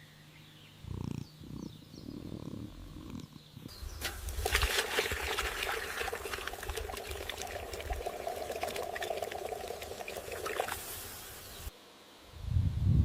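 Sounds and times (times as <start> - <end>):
water pouring and splashing: 3.9 - 11.7.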